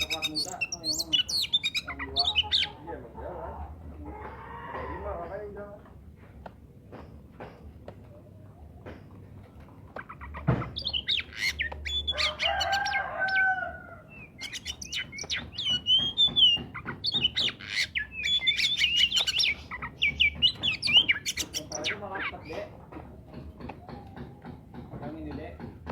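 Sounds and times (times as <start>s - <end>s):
bird singing whistled song: 10.8s - 12.5s, 14.2s - 22.0s.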